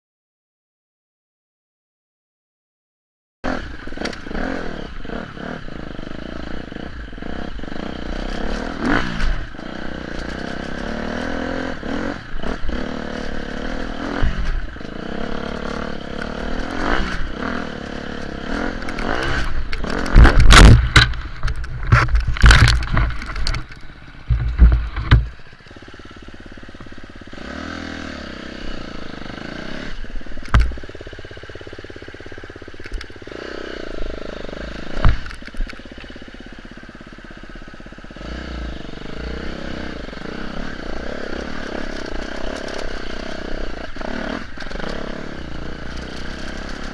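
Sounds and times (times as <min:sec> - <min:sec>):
motorcycle engine revving: 0:03.4 - 0:46.9
motorcycle crashing: 0:13.2 - 0:27.0.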